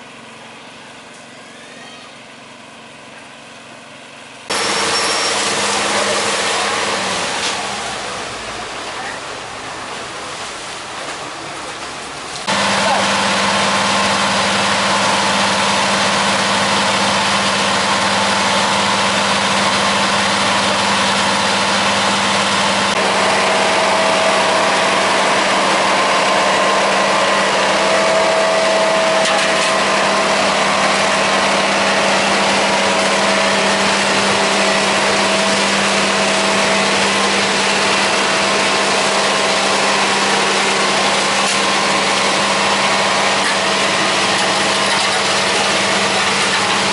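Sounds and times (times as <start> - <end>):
construction machinery engine running: 0.0 - 46.9
higher whine: 12.4 - 46.9.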